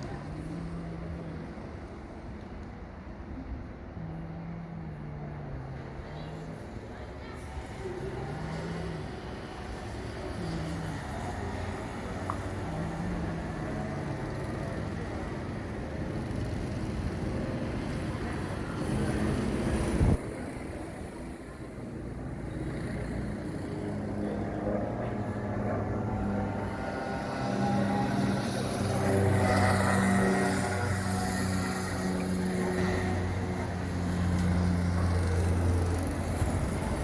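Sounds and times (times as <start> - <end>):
go-kart engines: 0.0 - 37.0.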